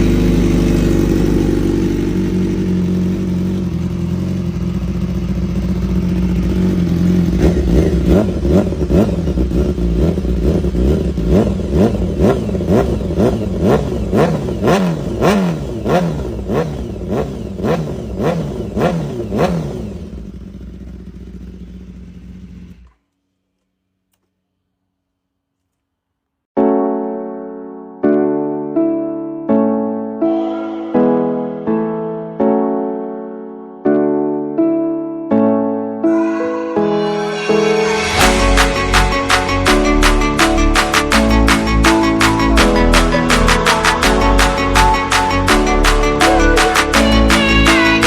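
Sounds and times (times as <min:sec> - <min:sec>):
engine revving with throttle blips: 0:00.0 - 0:23.0
motorcycle engine idling: 0:00.0 - 0:24.8.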